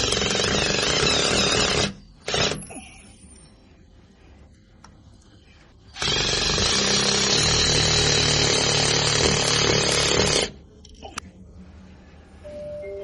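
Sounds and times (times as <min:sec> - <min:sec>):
electric drill boring into wall: 0:00.0 - 0:02.6, 0:06.0 - 0:10.5.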